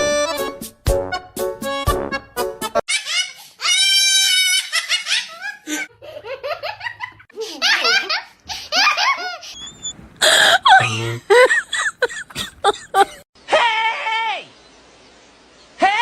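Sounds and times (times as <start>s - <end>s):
laughter in short bursts: 8.8s - 13.2s.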